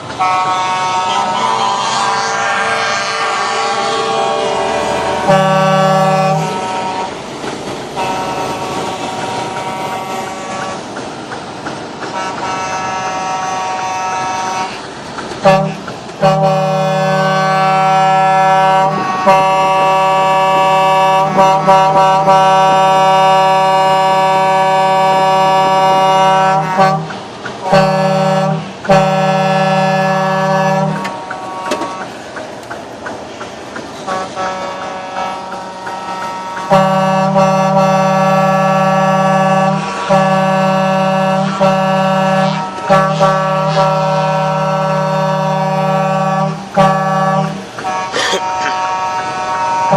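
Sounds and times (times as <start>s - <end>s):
faint horn toots: 0.2s - 7.2s, 15.4s - 32.2s, 34.1s - 49.9s
truck air horn blasts: 0.2s - 7.3s, 8.0s - 10.9s, 12.1s - 14.8s, 15.4s - 32.2s, 34.0s - 49.9s.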